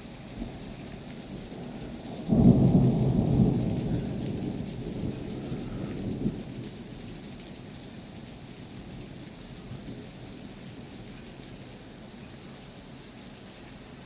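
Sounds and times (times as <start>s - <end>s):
steady rain: 0.0s - 14.0s
thunder rumbling: 1.4s - 7.2s.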